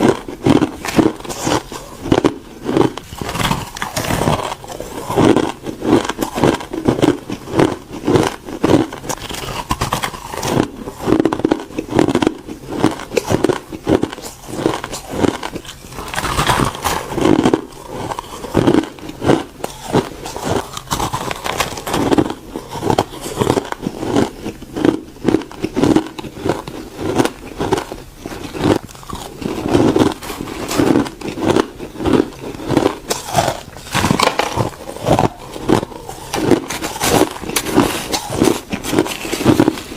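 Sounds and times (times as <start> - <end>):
ice crunching while chewed: 0.0 - 39.9.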